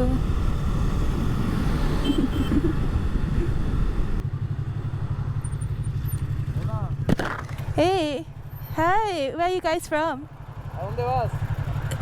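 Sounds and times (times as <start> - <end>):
motorcycle engine running: 4.1 - 12.0.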